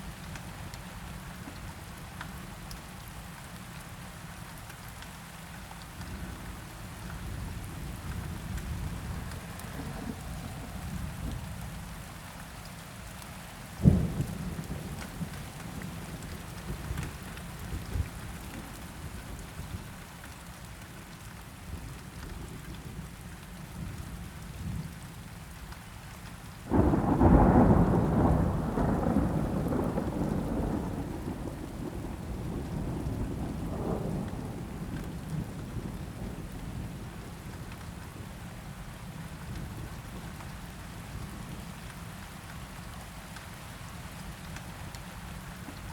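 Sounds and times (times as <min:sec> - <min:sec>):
steady rain: 0:00.0 - 0:45.9
thunder clap rumbling: 0:26.7 - 0:36.9.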